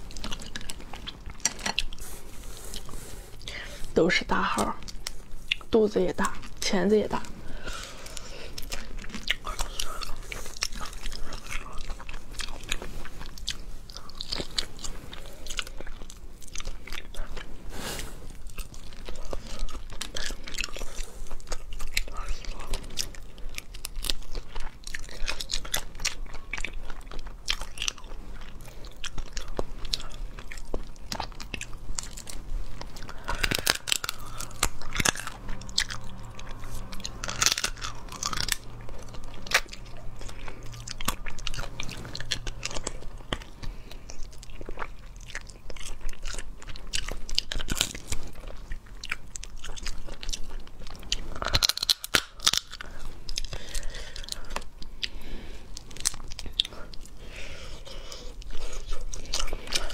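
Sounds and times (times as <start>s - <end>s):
crunching and chewing: 0.0s - 59.9s.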